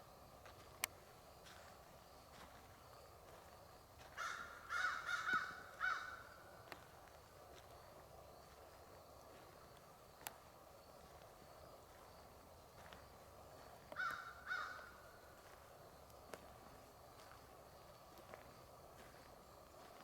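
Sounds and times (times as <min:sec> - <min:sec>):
faint woodland background: 0:00.0 - 0:20.0
crow cawing: 0:04.2 - 0:06.5, 0:13.9 - 0:15.3.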